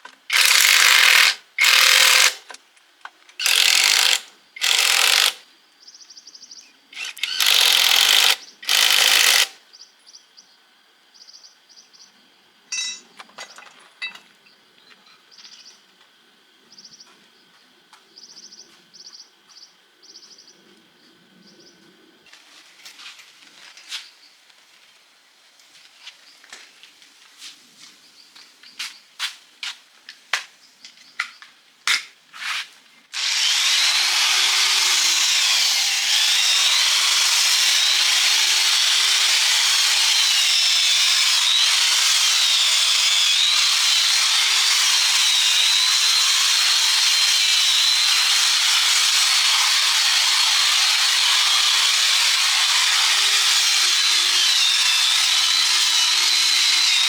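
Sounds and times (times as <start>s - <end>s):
power tool whining against metal: 0.3s - 2.4s, 3.4s - 5.4s, 7.0s - 9.6s, 33.2s - 57.0s.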